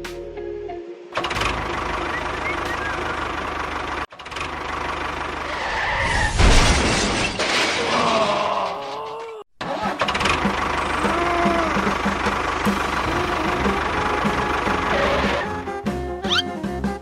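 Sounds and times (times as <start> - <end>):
engine running with low pulse: 1.1 - 5.5, 10.0 - 17.0.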